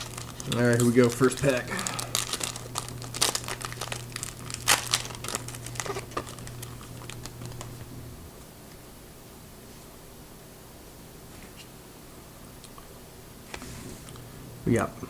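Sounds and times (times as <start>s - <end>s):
wrapper crinkling and tearing: 0.0s - 7.9s.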